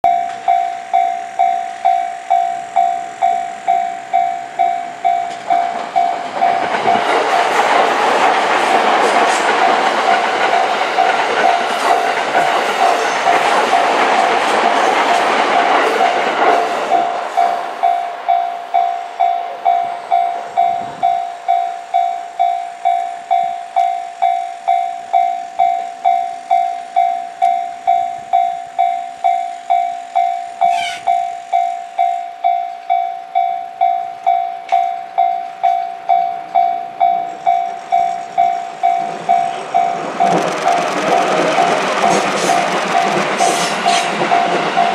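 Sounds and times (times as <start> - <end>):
level-crossing warning bell: 0.0 - 44.9
train running noise: 0.0 - 44.9.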